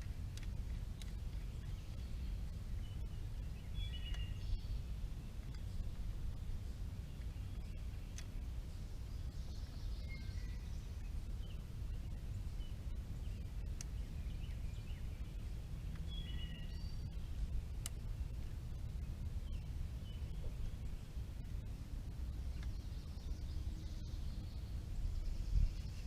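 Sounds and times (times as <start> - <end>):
low rumble: 0.0 - 26.0
faint bird chirps: 1.0 - 17.4.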